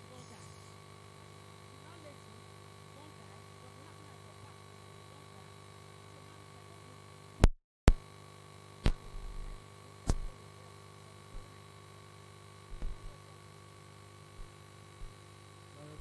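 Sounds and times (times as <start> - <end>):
electrical hum: 0.0 - 16.0
sharp clicks and knocks: 8.9 - 10.3, 12.7 - 13.2
faint low thumps: 12.7 - 13.2.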